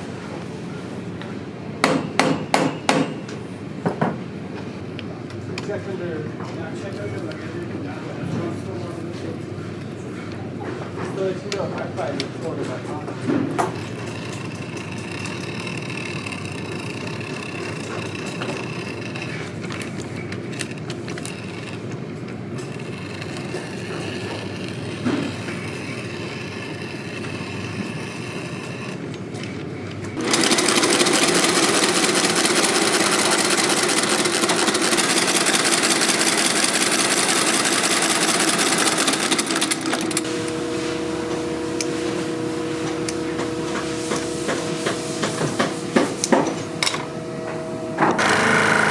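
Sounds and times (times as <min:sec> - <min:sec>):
industrial sewing machine stitching: 0:30.2 - 0:47.1, 0:48.1 - 0:48.9.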